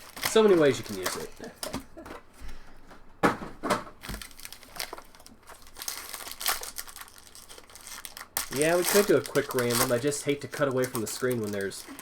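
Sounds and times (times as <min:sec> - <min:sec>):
card pack wrappers crinkling: 0:00.0 - 0:01.6, 0:04.0 - 0:12.0.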